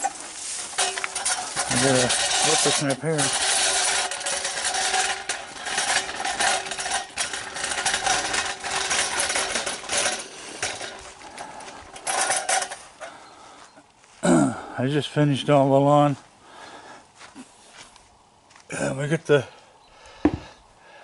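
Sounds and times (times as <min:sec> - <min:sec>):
equipment rattling and scraping: 0:00.0 - 0:13.8.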